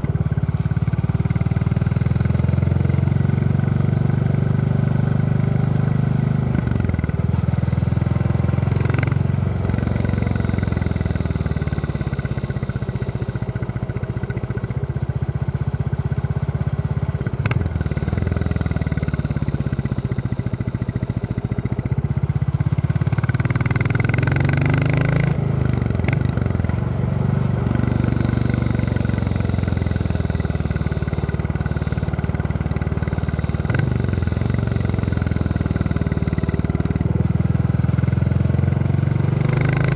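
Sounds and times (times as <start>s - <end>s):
motorcycle engine thumping: 27.4s - 37.6s.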